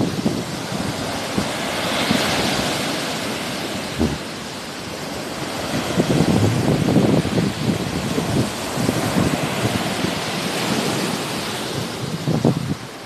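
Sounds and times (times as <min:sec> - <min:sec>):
sea waves washing onto shore: 0:00.0 - 0:13.0
wind buffeting microphone: 0:00.0 - 0:13.0.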